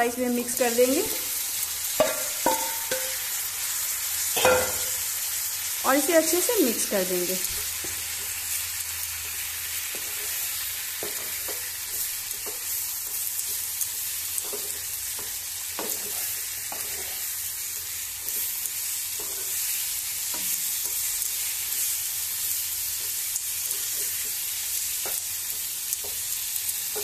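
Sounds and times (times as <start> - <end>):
vegetables sizzling in hot oil: 0.0 - 27.0
spatula scraping pan: 14.4 - 18.5.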